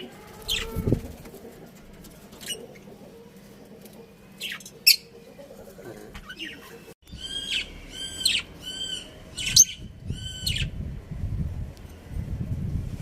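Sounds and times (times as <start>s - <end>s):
low rumbling noise: 7.1s - 13.0s.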